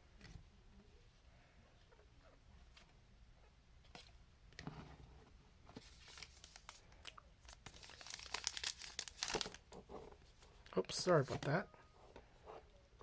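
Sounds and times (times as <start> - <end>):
plastic wrapper tearing and crinkling: 6.0 - 9.6.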